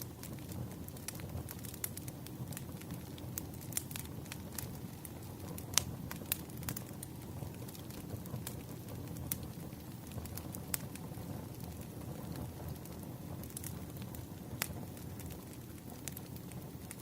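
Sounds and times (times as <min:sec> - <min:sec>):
firewood crackling and popping: 0:00.0 - 0:17.0.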